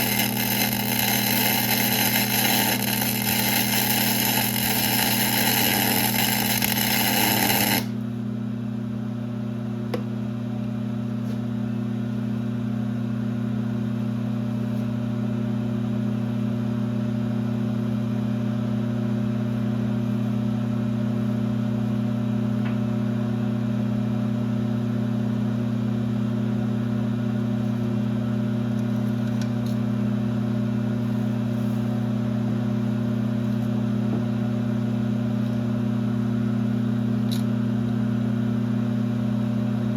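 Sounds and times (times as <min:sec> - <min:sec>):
metal lathe humming: 0:00.0 - 0:08.0.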